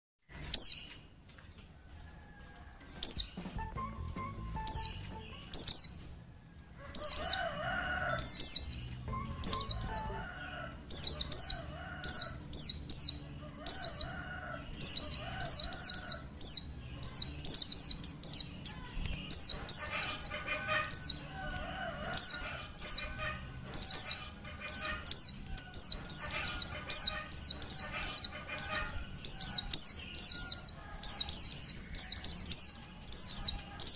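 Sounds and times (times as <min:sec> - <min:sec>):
high thin bird calls: 0:00.4 - 0:01.0, 0:03.0 - 0:06.1, 0:06.9 - 0:14.2, 0:14.8 - 0:33.9
low warbling chirps: 0:03.0 - 0:06.1, 0:06.9 - 0:10.3.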